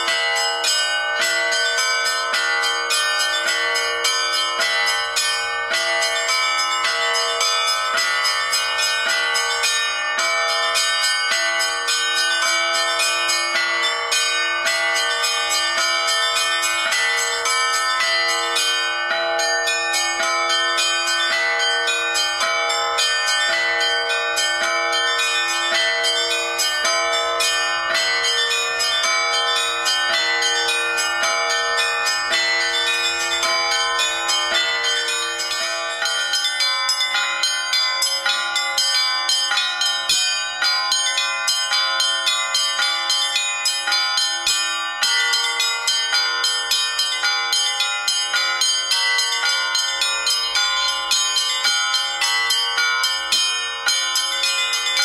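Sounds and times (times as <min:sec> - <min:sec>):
bells ringing: 0:00.0 - 0:55.0.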